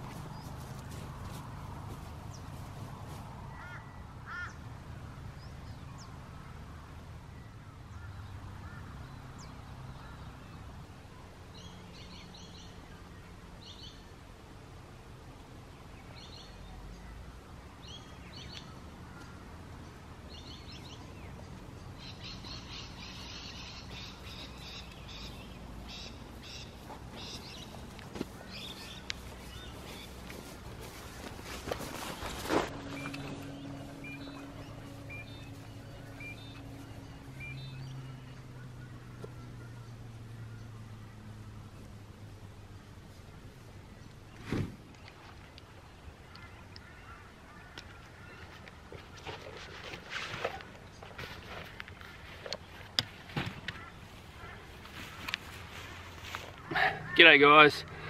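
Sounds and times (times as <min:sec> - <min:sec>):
low bird calls: 0:00.0 - 0:04.6, 0:21.9 - 0:41.9, 0:42.7 - 0:57.2
high chirping bird calls: 0:21.9 - 0:40.7.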